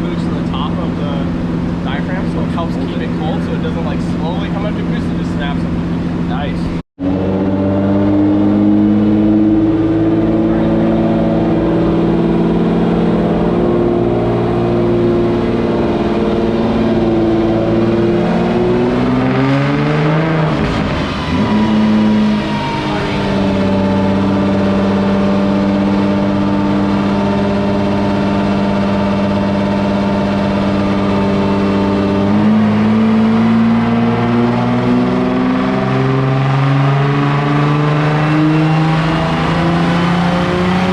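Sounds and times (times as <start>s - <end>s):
car engine running under load: 0.0s - 40.9s.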